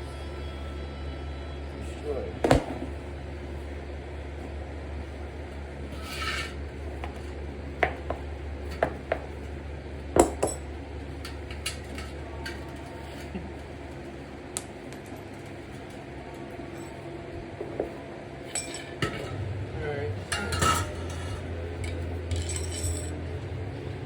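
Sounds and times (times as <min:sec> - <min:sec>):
steady low hum: 0:00.0 - 0:24.0
metallic clinks and knocks: 0:20.2 - 0:23.2.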